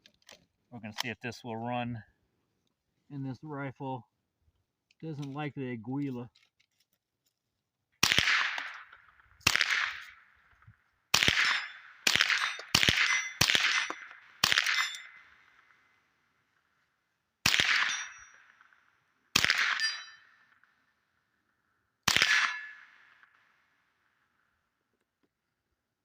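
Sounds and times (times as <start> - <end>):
suppressed rifle shots: 8.0 - 10.3, 11.1 - 15.8, 17.4 - 20.7, 22.0 - 23.5.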